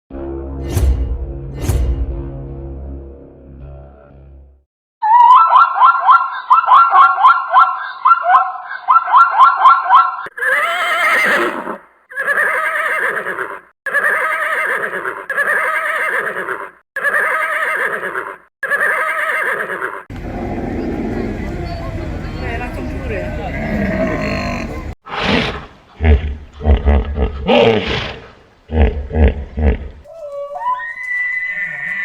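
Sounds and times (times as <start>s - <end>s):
long animal calls: 5.0s - 22.0s, 23.4s - 32.0s
fast quavering animal call: 6.4s - 20.1s.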